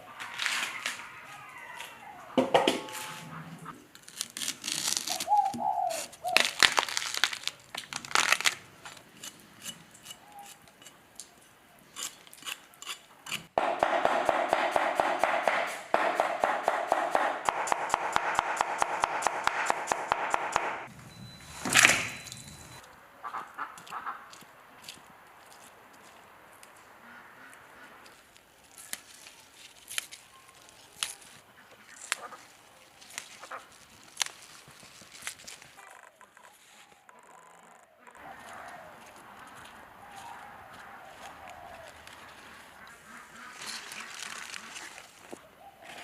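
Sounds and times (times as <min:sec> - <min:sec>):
kitchen knocks and clatter: 0:02.4 - 0:03.0.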